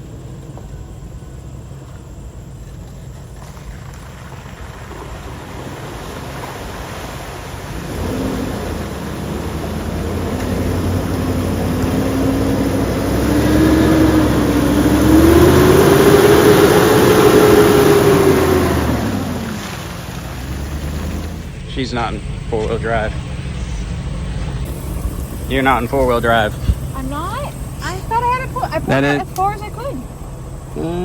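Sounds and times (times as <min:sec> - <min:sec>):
engine revving under load: 0:04.5 - 0:31.0.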